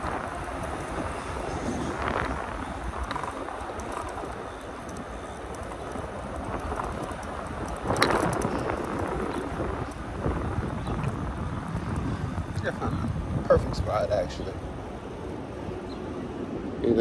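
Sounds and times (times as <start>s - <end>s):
tyre rolling noise: 0.0s - 14.4s
wind rushing over microphone: 0.0s - 17.0s.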